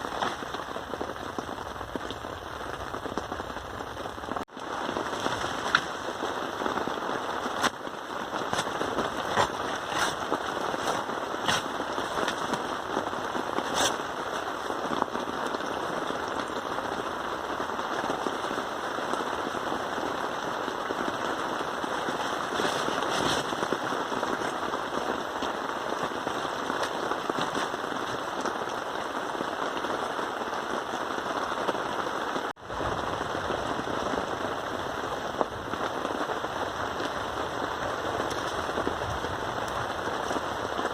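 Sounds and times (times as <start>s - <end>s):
steady rain falling: 0.0s - 40.9s
sharp pops: 8.4s - 12.5s.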